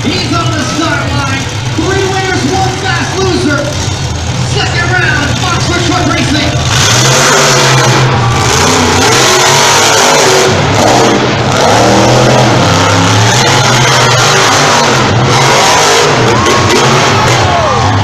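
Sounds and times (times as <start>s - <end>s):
monster truck engines revving: 0.0s - 18.0s.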